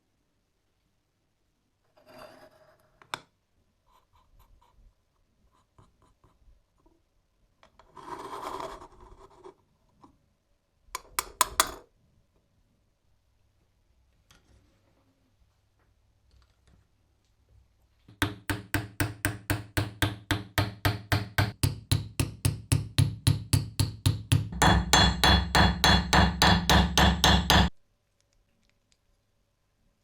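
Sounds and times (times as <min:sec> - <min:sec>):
hammer striking metal: 0:18.1 - 0:27.7.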